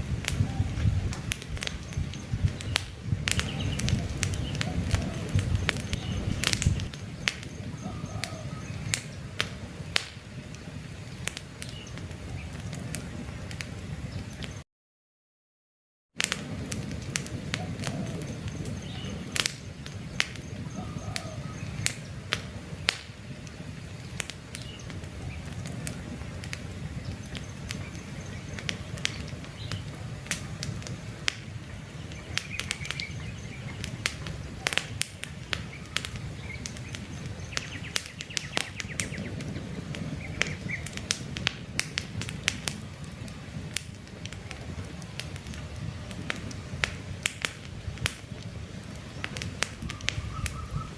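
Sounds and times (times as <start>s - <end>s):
campfire crackling and popping: 0.0s - 14.6s, 16.2s - 50.9s
faint bird chirps: 7.4s - 9.0s, 20.2s - 22.1s, 49.8s - 50.9s.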